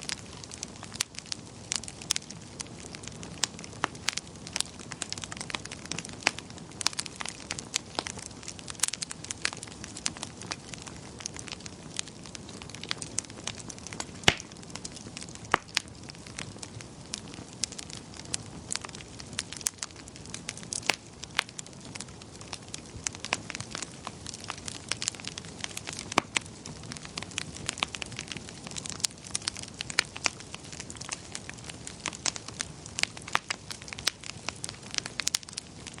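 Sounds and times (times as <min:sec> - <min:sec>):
low rumble of flame: 0:00.0 - 0:36.0
wood fire crackling and popping: 0:00.0 - 0:36.0.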